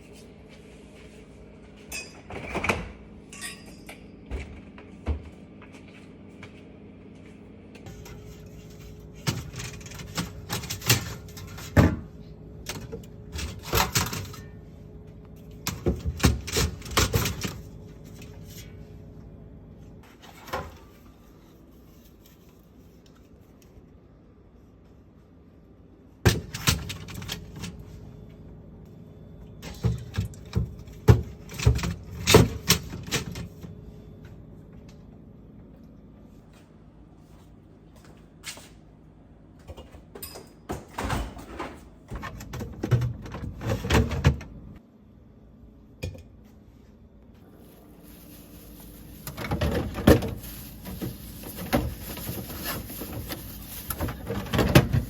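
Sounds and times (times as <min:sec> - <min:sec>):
packaging rustling: 0:47.7 - 0:55.0
plastic bins clicking and tapping: 0:49.2 - 0:55.0.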